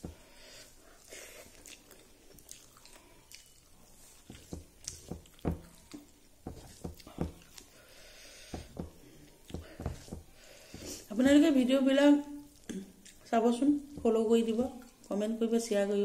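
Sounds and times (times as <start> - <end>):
person chewing food: 0.0 - 11.1, 12.5 - 13.3.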